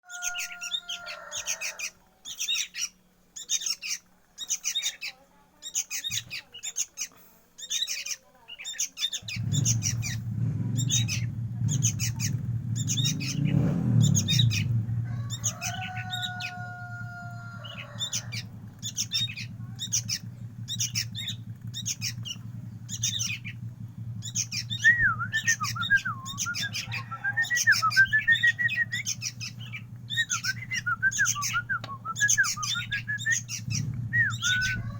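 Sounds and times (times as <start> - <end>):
young bird chirping: 0.0 - 34.9
low steady hum: 8.9 - 34.9
warbling whistle: 24.7 - 29.1, 30.2 - 33.5.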